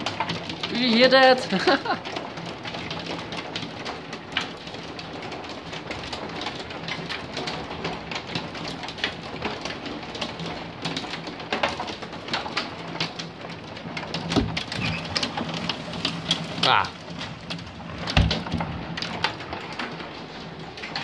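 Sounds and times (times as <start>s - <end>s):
hail clicking on hard surfaces: 0.0s - 21.0s.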